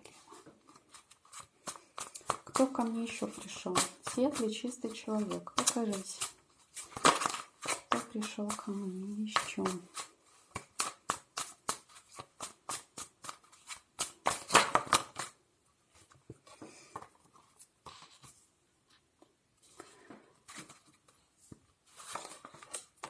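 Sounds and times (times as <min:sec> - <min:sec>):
cards being shuffled: 0:00.0 - 0:15.4, 0:21.9 - 0:23.0.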